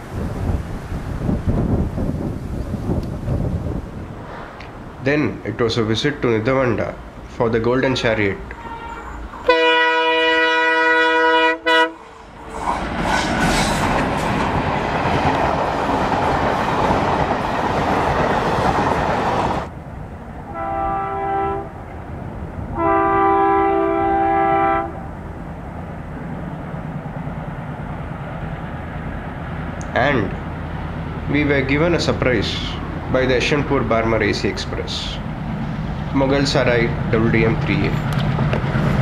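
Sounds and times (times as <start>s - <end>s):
train passing with clattering rumble: 0.0s - 39.0s
train horn blasts: 8.5s - 12.6s, 20.5s - 21.8s, 22.7s - 25.1s
low engine rumble: 24.1s - 39.0s.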